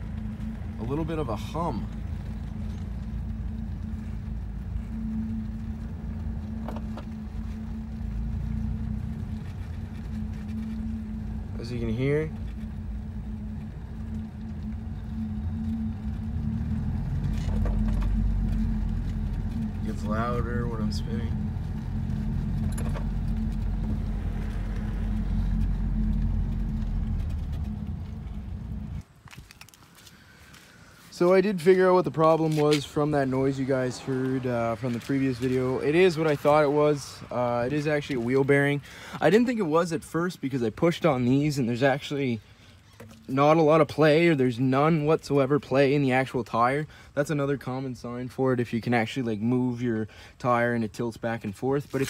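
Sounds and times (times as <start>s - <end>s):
steady low hum: 0.0s - 29.2s
car road noise: 0.0s - 52.0s.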